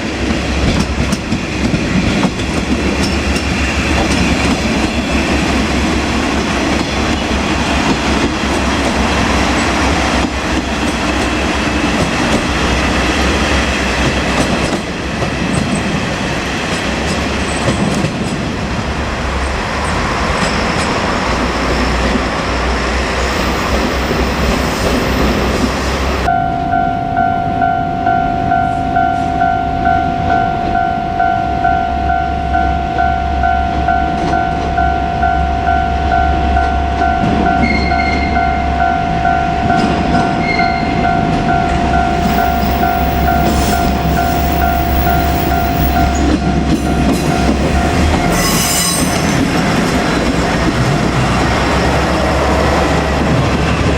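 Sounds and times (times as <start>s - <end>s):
train engine rumbling: 0.0s - 53.9s
level crossing bell ringing: 26.2s - 49.1s
high squeal: 37.6s - 38.5s, 47.2s - 49.6s.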